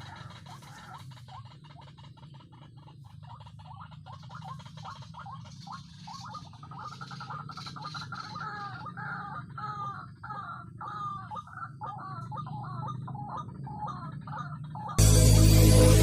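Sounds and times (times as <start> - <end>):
waterhen croaking calls: 0.0 - 15.0
steady low hum: 15.0 - 16.0.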